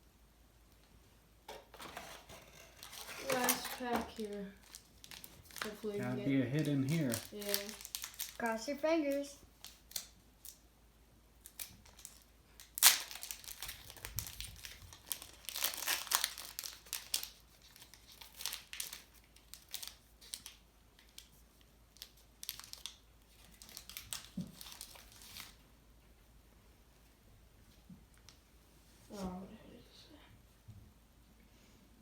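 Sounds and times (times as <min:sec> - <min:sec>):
wrapper tearing: 0:01.7 - 0:08.5, 0:09.6 - 0:10.6, 0:11.4 - 0:21.4, 0:22.0 - 0:25.6
wrapper crinkling: 0:01.7 - 0:10.6, 0:11.4 - 0:25.6.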